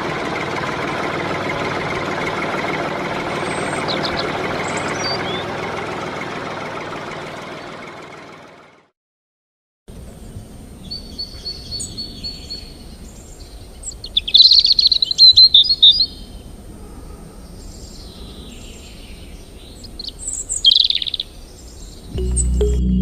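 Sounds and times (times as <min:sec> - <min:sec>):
birds chirping and calling: 0:03.2 - 0:05.6, 0:10.8 - 0:22.5.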